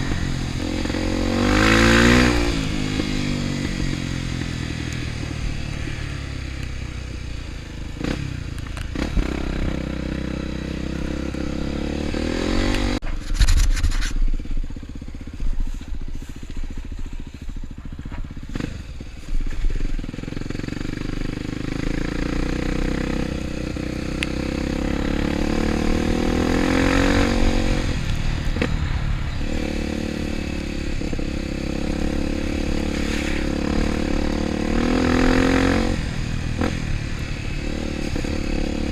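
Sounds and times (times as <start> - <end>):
motorcycle engine revving: 0.0 - 38.9
knocks and scrapes: 12.7 - 14.6.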